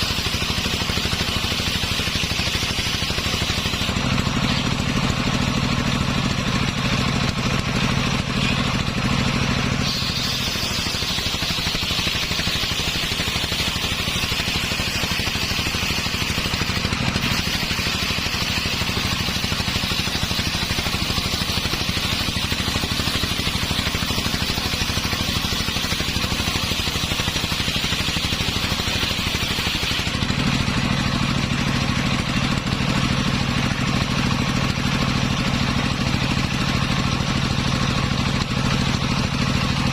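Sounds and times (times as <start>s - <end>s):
circular saw engine: 0.0s - 39.9s
saw blade whine cutting log: 0.0s - 39.9s.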